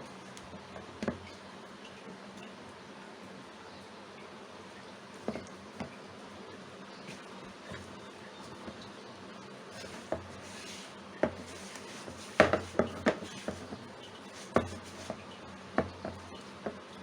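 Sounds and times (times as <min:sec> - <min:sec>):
dough kneaded in a bowl: 0:07.0 - 0:17.0.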